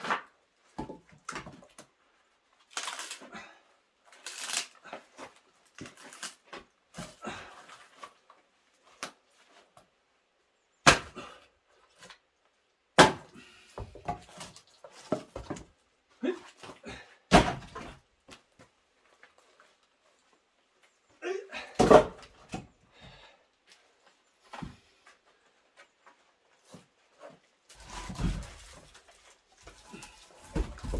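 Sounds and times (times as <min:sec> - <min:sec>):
axe splitting logs: 0:10.8 - 0:11.4, 0:13.0 - 0:13.4, 0:17.3 - 0:18.0, 0:21.8 - 0:22.6.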